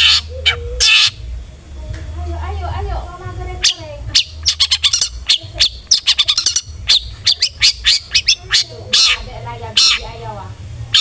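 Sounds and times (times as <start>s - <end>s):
shrike calling: 0.0s - 1.3s, 3.6s - 11.0s.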